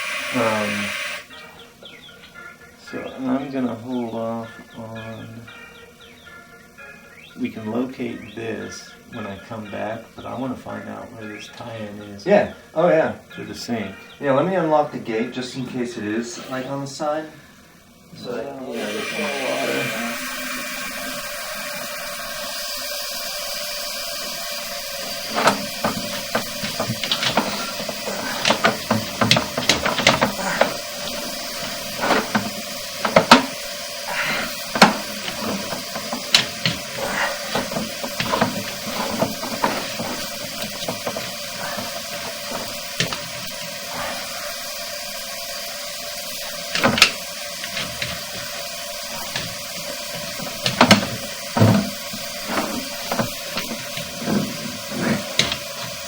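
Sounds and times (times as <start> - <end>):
steady hiss: 0.0 - 56.0
irregular clicks and knocks: 24.3 - 44.8, 46.1 - 56.0.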